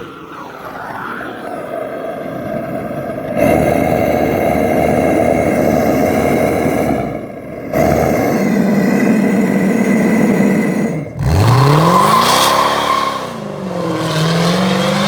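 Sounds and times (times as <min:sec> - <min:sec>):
vehicle engine under load: 0:07.5 - 0:15.0.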